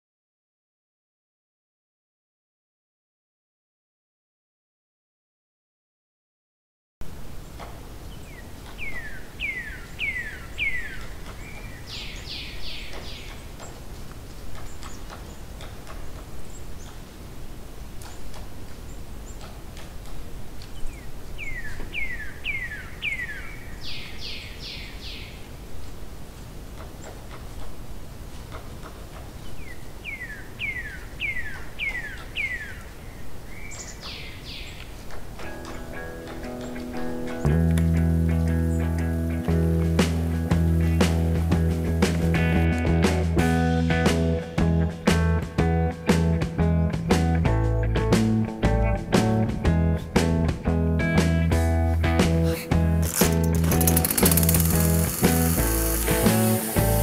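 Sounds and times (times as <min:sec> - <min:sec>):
songbird singing: 0:07.0 - 0:26.1, 0:26.7 - 0:42.6
low background noise: 0:07.0 - 0:57.0
guitar music: 0:35.4 - 0:57.0.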